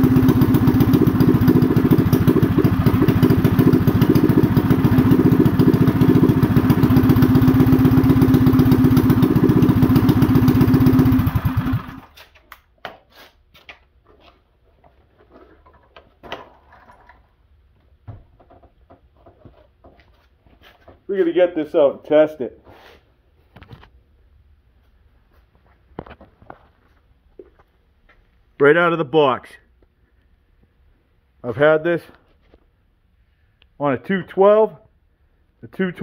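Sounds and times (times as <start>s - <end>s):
small engine idling fast: 0.0s - 12.2s.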